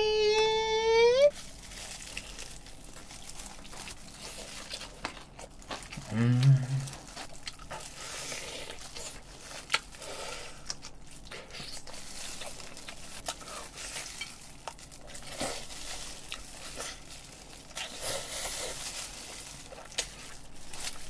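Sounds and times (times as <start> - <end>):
crispy chicken crunching: 1.3 - 21.0.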